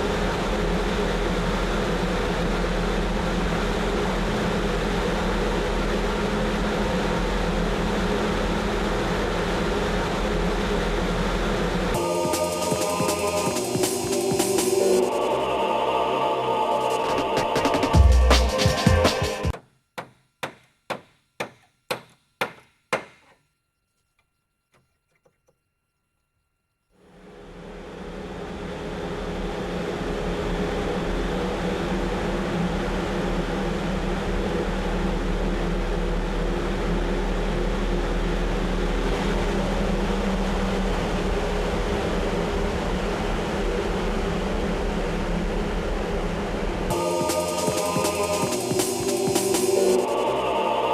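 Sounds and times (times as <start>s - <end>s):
wind machine roaring: 0.0s - 15.6s, 27.1s - 50.8s
low even hum: 0.0s - 18.6s, 25.9s - 50.9s
sharp ringing knocks: 19.6s - 23.4s.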